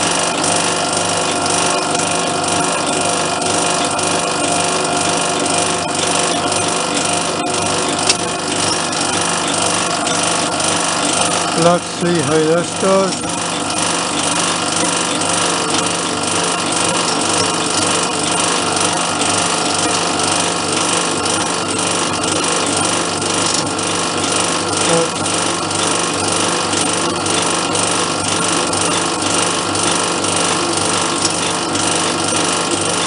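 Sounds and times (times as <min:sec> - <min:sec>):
machine tool cutting metal: 0:00.0 - 0:33.0.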